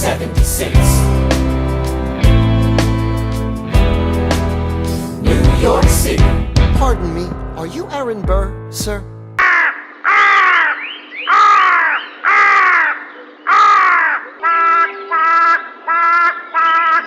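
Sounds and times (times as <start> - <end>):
bird calls: 9.4 - 17.0.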